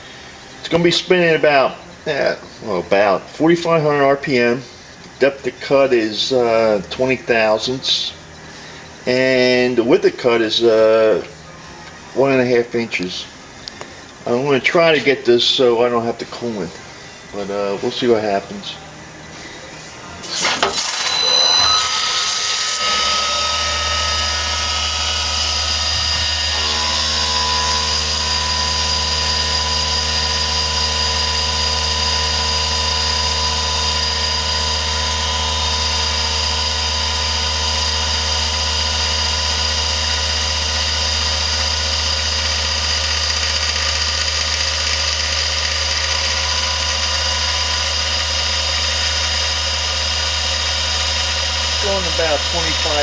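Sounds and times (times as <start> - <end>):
milling machine spindle whine: 12.0 - 53.0
fly cutter cutting metal: 20.2 - 53.0.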